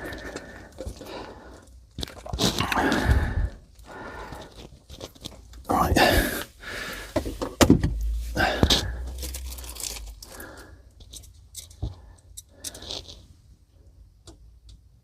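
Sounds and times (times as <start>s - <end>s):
sharp knocks: 7.6s - 8.8s.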